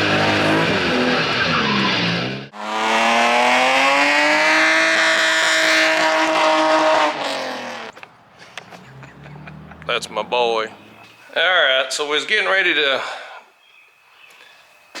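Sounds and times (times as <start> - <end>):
tyres squealing: 0.0 - 2.4, 7.9 - 13.4
car engine revving high: 0.0 - 8.0, 8.6 - 11.1.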